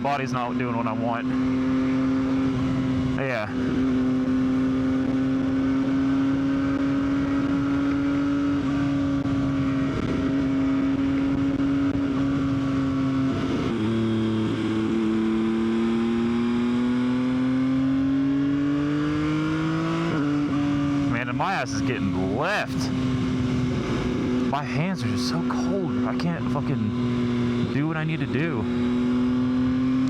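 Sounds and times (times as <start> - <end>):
motorcycle engine running: 1.2 - 30.0.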